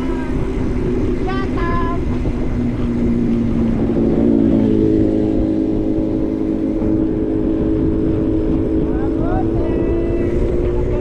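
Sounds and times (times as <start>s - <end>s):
vehicle engine running: 0.0s - 11.0s
wind rumble on microphone: 0.0s - 11.0s.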